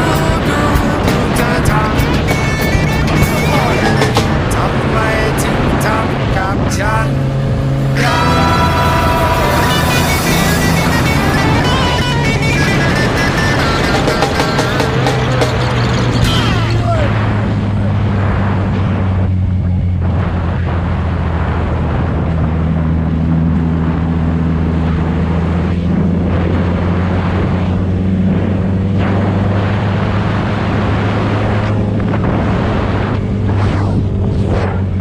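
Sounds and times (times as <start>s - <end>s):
motorcycle engine cruising: 0.0s - 35.0s
wind rush on microphone: 0.0s - 35.0s.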